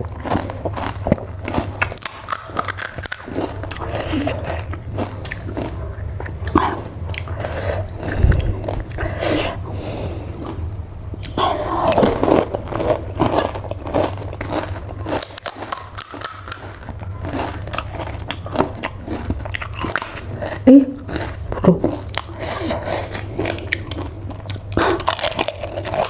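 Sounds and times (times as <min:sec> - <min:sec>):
crisp shells crunching: 0:00.2 - 0:06.6, 0:12.0 - 0:22.4.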